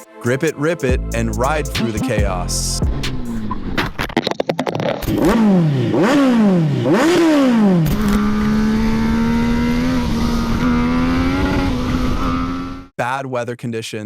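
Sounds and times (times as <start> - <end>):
motorcycle engine revving: 5.0 - 12.9.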